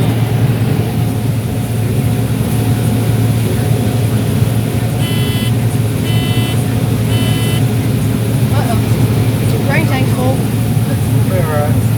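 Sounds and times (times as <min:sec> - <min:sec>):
vehicle engine droning: 0:00.0 - 0:11.9
electronic beep: 0:05.0 - 0:07.7.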